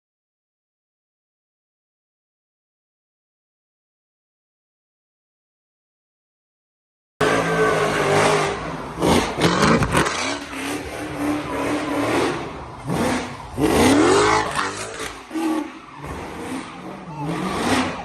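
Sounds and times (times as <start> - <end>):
car engine revving hard: 7.2 - 18.0.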